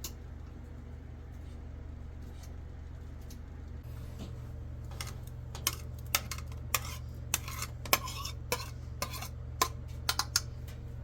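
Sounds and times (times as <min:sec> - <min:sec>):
metal utensils clinking on dishes: 0:04.9 - 0:10.6.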